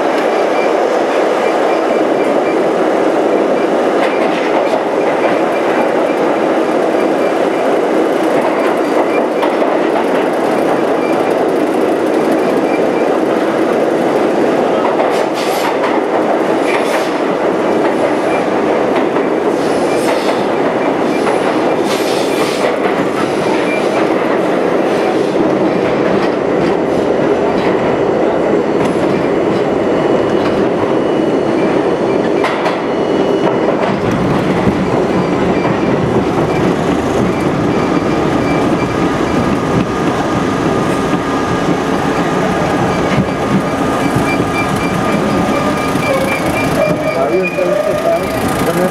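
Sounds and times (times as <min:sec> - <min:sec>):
subway train rumbling: 0:00.0 - 0:48.9
wheels clacking over rail joints: 0:03.6 - 0:27.9, 0:33.4 - 0:48.9
high wheel squeals: 0:42.8 - 0:48.9.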